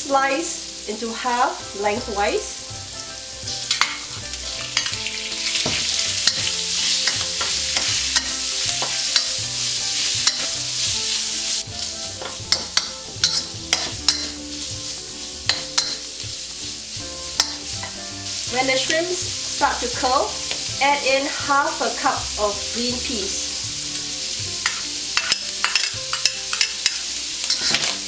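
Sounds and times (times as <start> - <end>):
shrimp sizzling in oil: 0.0 - 28.0
metal spatula scraping a wok: 3.5 - 16.2, 17.3 - 18.6, 24.5 - 28.0.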